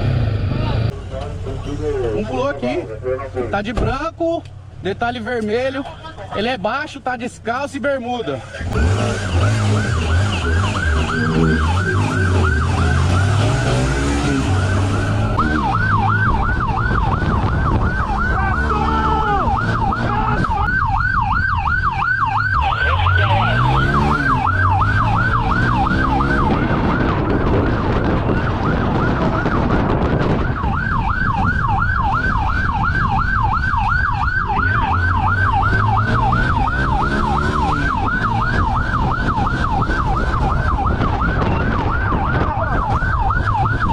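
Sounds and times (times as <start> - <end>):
vehicle engine revving: 8.5 - 20.7, 22.8 - 30.4, 34.4 - 42.4
police siren yelping: 8.6 - 43.9.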